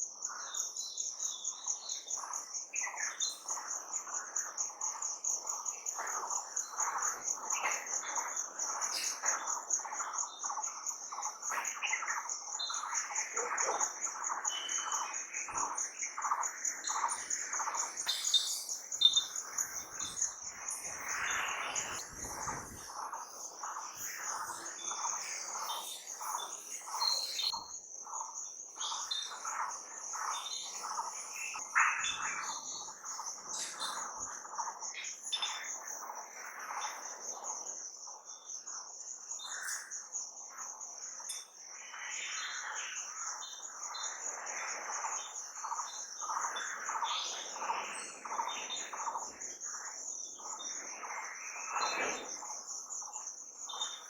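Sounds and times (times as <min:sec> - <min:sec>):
insect trill: 0:00.0 - 0:54.0
birds chirping and calling: 0:05.9 - 0:28.2, 0:28.8 - 0:36.1.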